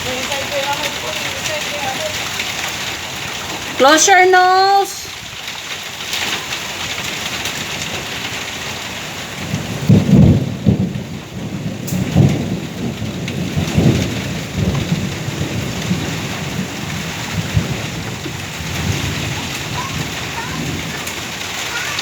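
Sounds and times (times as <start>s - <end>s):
heavy rain: 0.0s - 22.0s
thunder rumbling: 9.1s - 22.0s.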